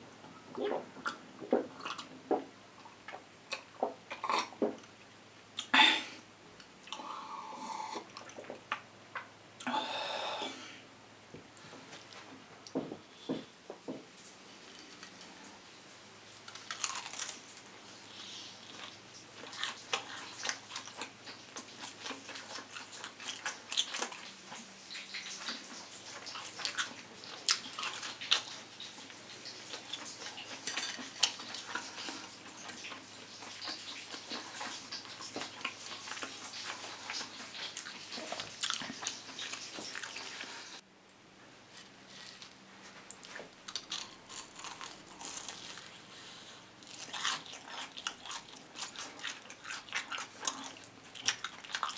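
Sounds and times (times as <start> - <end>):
crunching and chewing food: 0.6 - 5.7, 6.6 - 9.3, 14.4 - 40.8, 41.6 - 51.9
crispy crust cracking: 16.4 - 17.7, 41.7 - 46.0.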